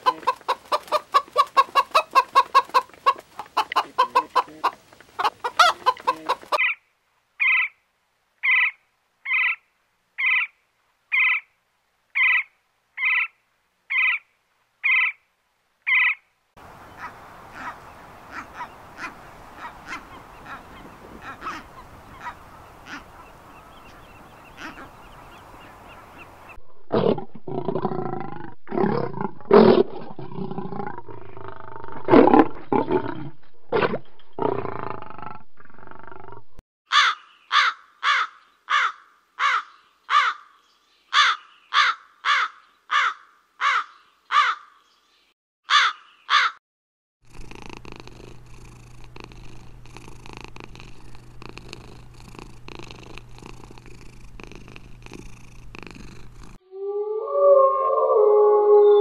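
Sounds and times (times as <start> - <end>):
bird giving sharp calls: 16.9 - 26.4, 45.7 - 46.6
lion roaring and grunting: 26.6 - 36.6
low hum with rasping crackle: 47.3 - 56.6.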